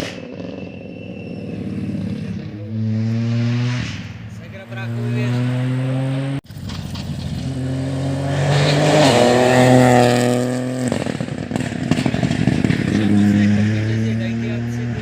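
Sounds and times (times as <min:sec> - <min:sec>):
rally car engine revving: 0:00.0 - 0:15.0
exhaust crackling pops: 0:06.4 - 0:07.6, 0:10.8 - 0:13.2.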